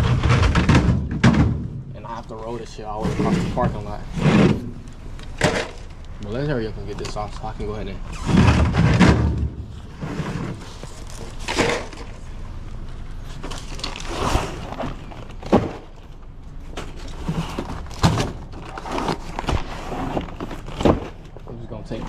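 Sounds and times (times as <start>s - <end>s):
drink cases knocking and thudding: 0.0s - 2.0s, 3.0s - 5.9s, 8.2s - 12.2s.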